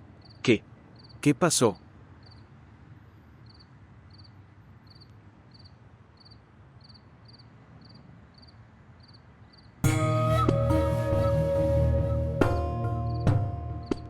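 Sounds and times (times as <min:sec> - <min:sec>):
crickets chirping: 0:00.0 - 0:09.8.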